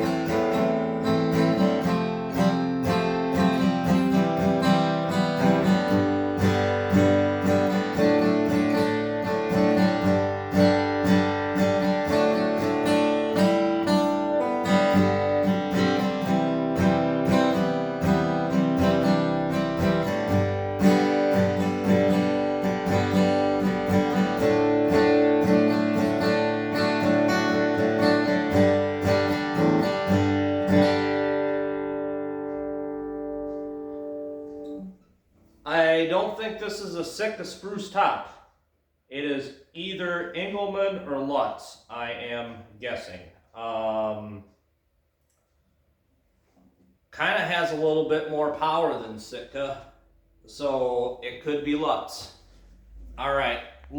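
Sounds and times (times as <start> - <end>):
acoustic guitar strummed chords: 0.0 - 36.9.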